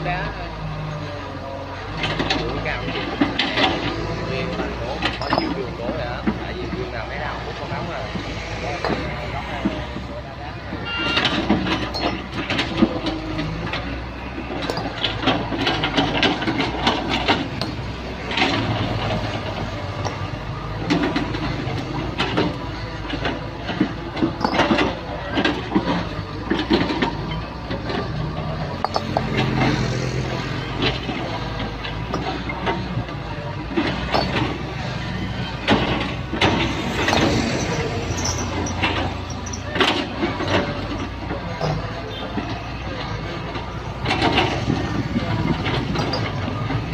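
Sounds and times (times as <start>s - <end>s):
diesel engine running under load: 0.0s - 46.9s
bucket clanking against soil and rock: 10.7s - 46.9s.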